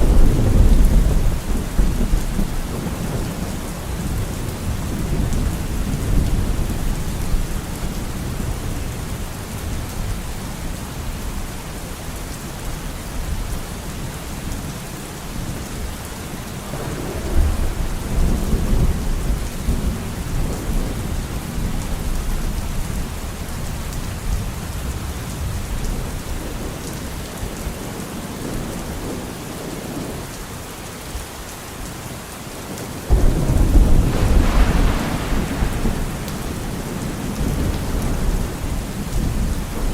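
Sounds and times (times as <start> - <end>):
loud thunder crack: 0.0 - 7.5, 16.7 - 21.2, 33.1 - 39.9
thunder rumbling: 0.0 - 11.3, 16.6 - 27.8, 33.1 - 39.9
heavy rain: 0.0 - 39.9.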